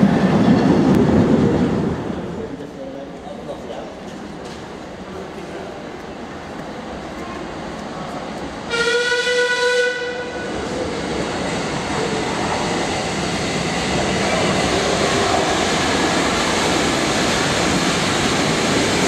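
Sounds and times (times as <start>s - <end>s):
train rumbling through tunnel: 0.0s - 19.0s
train horn blast: 8.7s - 10.6s.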